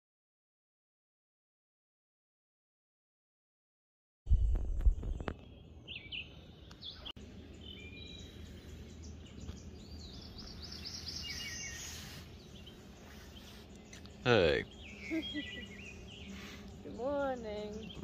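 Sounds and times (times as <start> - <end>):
birds calling and chirping: 4.6 - 18.0.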